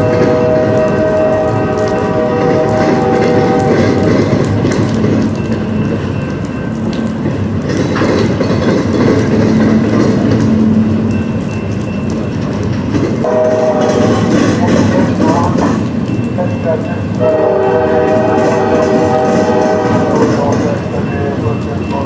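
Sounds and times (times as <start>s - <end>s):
locomotive horn: 0.0s - 4.3s, 13.2s - 14.6s, 16.7s - 20.5s
train wheels clattering on rails: 0.0s - 22.0s.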